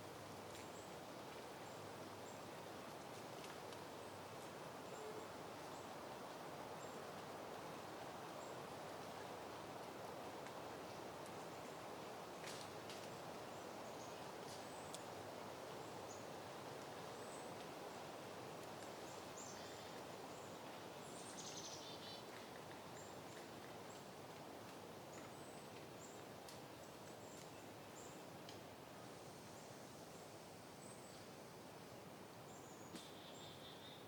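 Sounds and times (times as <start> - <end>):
soft wind: 0.0 - 34.0.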